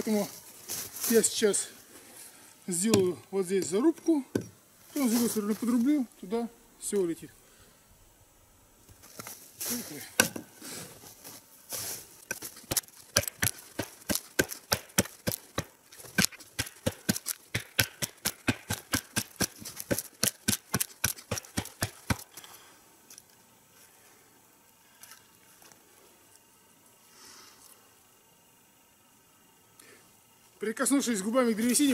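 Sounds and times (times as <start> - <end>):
axe chopping wood: 12.3 - 22.3.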